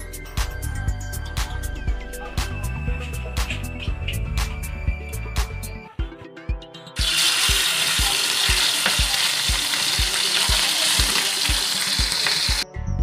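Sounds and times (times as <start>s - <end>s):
metal spatula stirring: 3.4s - 4.5s
meat sizzling in hot oil: 7.0s - 12.6s.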